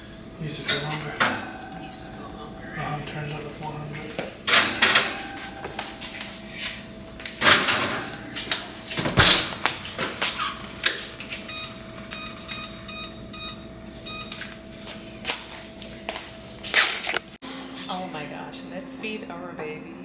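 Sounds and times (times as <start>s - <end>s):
electronic appliance beeps: 10.4s - 14.7s.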